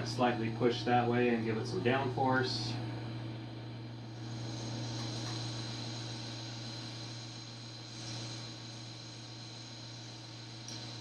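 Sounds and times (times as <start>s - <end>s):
low electrical hum: 0.0s - 11.0s
hiss: 3.8s - 11.0s.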